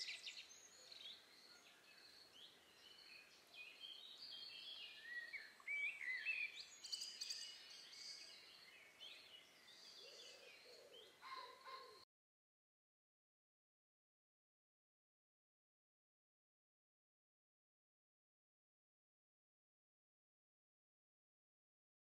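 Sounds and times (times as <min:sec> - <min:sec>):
small birds chirping: 0:00.0 - 0:12.1.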